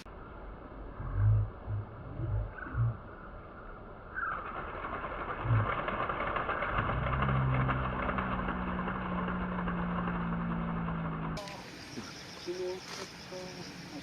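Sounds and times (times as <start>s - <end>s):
low engine hum: 0.0s - 14.0s
dense steady hiss: 11.4s - 14.0s.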